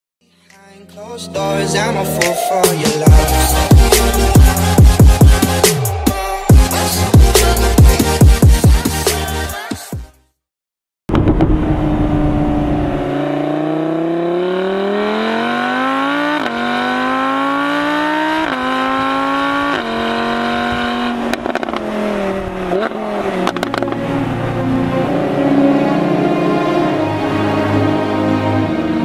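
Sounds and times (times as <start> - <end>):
sports car engine accelerating: 1.3 - 8.0, 11.1 - 29.0
exhaust pops and crackles: 11.1 - 12.0, 21.3 - 21.9, 23.4 - 24.0.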